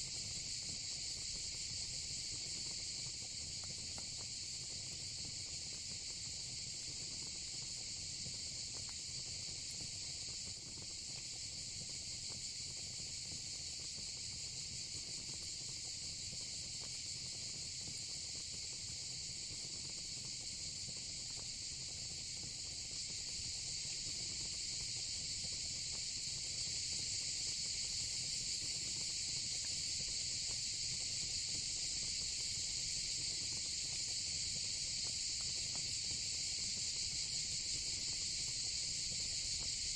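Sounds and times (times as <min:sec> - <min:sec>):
insects chorus: 0:25.8 - 0:39.9.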